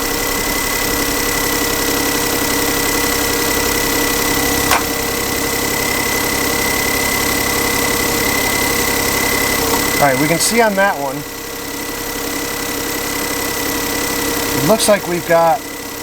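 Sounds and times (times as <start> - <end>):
car engine idling roughly: 0.0 - 16.0
sharp click: 4.7 - 5.0
steady high tone: 14.5 - 15.7.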